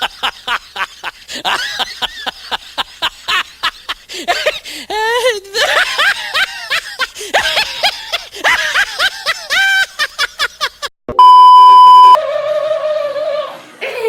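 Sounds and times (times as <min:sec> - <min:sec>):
loud steady beep: 0:11.1 - 0:12.2.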